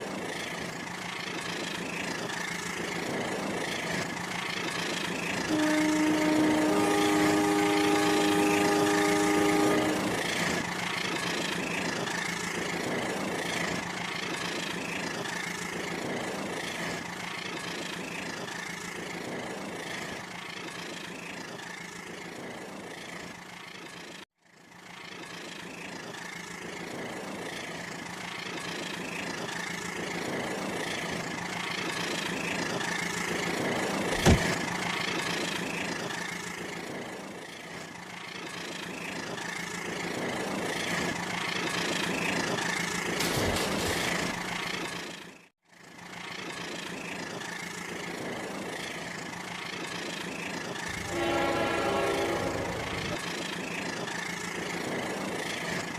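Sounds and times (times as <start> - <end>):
multi-tone horn: 5.5 - 10.6, 50.9 - 53.2.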